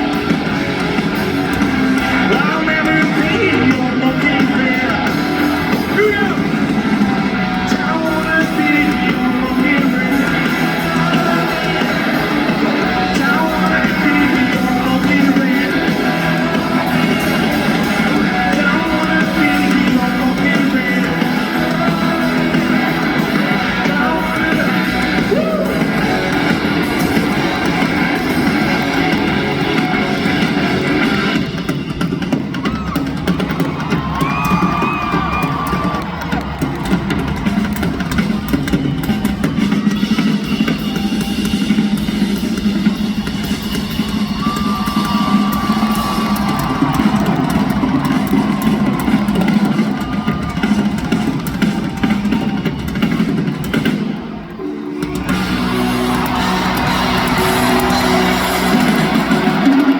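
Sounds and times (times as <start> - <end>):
yelled vocals: 0.0 - 31.6, 55.0 - 59.9
live rock band playing: 0.0 - 59.9.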